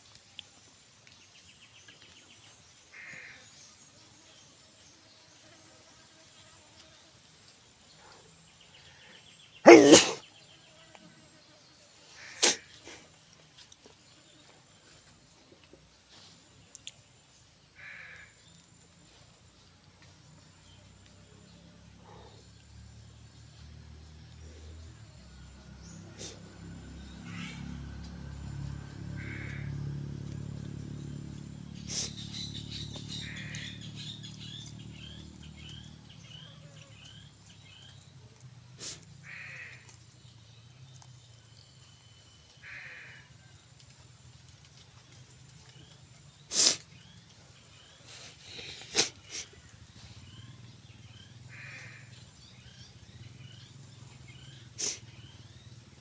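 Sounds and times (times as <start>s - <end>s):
short bird calls: 8.9s - 10.3s, 12.2s - 13.0s, 31.8s - 36.9s, 51.5s - 52.1s
high insect drone: 17.3s - 56.0s.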